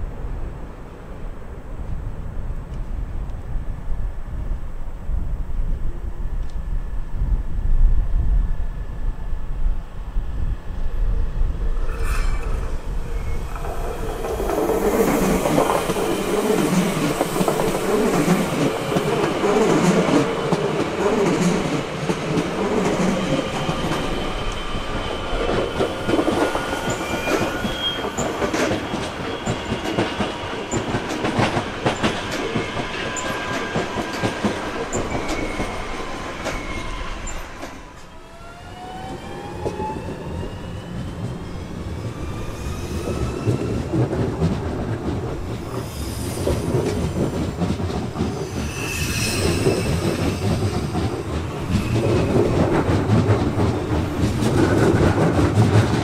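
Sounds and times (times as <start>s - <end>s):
rising tones of accelerating train: 0.0s - 56.0s
train rumble: 0.0s - 56.0s
high-pitched wheel squeal: 11.8s - 16.6s, 25.9s - 29.8s, 34.9s - 37.8s, 48.4s - 52.7s.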